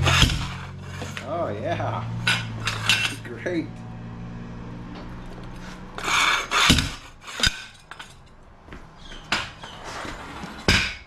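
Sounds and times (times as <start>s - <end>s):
tire scraping: 0.0s - 11.0s.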